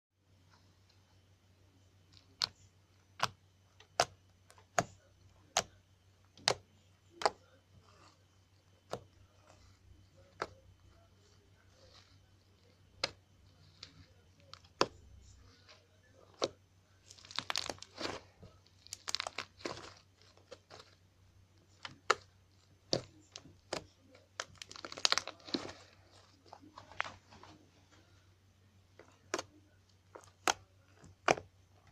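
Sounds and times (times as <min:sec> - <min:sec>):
slime squeezed popping and crackling: 0:17.1 - 0:20.8, 0:24.4 - 0:25.8.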